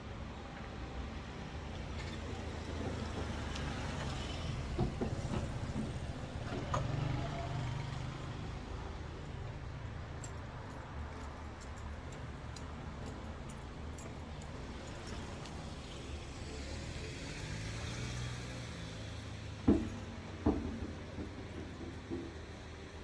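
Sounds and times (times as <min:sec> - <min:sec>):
car road and engine rumble: 0:00.0 - 0:23.0
small knocks and rattles: 0:19.6 - 0:23.0.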